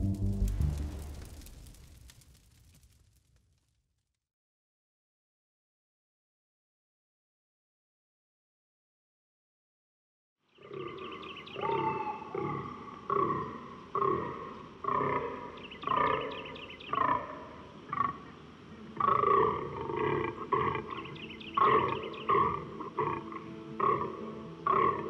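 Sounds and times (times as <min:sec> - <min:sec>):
deer groaning: 0:19.0 - 0:25.0.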